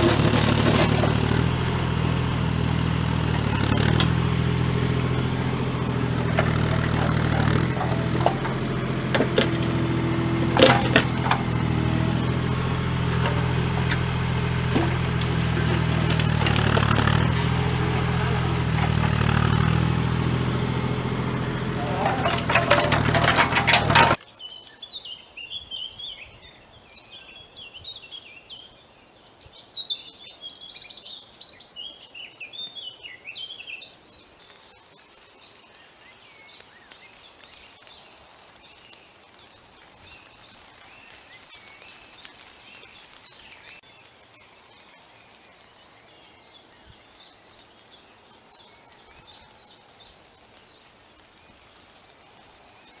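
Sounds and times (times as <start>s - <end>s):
birds chirping and trilling: 0.0s - 34.8s.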